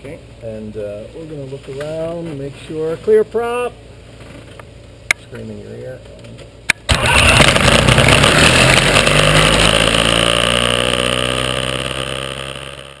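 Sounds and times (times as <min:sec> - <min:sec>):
propeller engine idling: 0:06.9 - 0:13.0.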